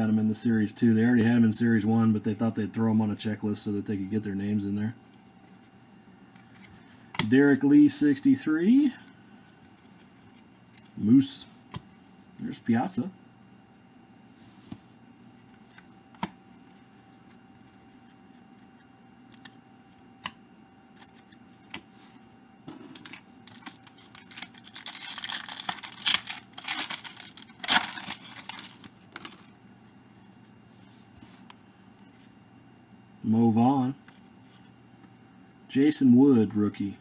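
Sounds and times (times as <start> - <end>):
foil wrapper crinkling and tearing: 22.8 - 29.6.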